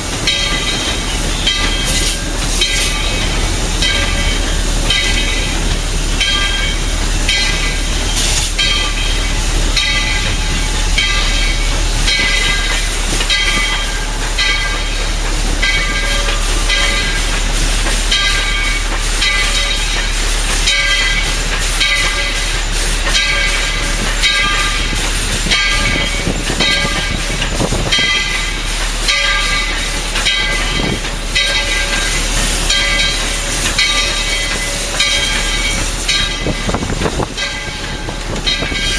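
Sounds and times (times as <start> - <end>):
steam hiss: 0.0 - 38.9
steam locomotive beat: 0.0 - 38.9.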